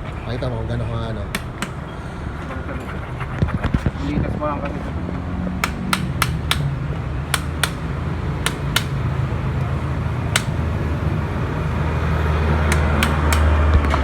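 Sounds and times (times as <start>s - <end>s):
sharp clicks: 1.3s - 1.9s, 5.6s - 9.0s, 10.4s - 10.8s, 12.6s - 14.0s.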